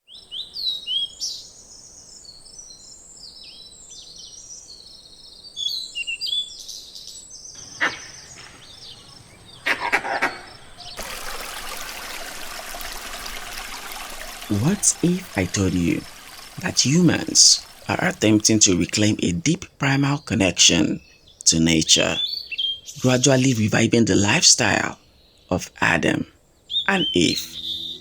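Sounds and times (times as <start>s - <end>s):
small birds chirping: 0.0s - 28.0s
flowing water rushing: 10.5s - 19.4s.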